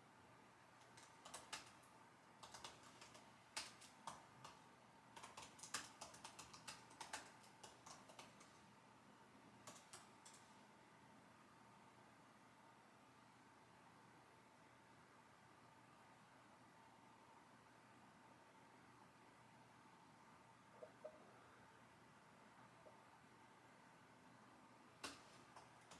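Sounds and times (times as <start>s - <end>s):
computer keyboard typing: 0.8s - 8.7s, 9.6s - 10.5s, 25.0s - 25.9s.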